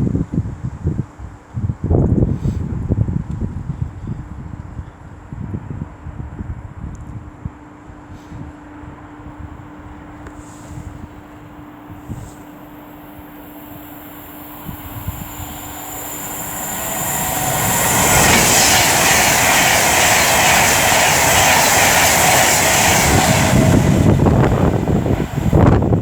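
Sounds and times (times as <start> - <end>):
electric train rushing past: 11.4 - 26.0
train wheels thudding: 14.5 - 26.0.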